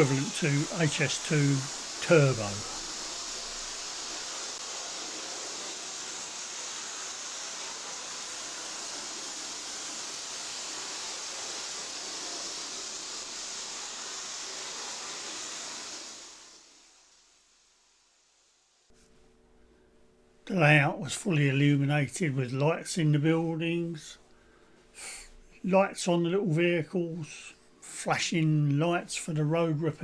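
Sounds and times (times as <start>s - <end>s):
model train whirring on track: 0.0s - 18.5s.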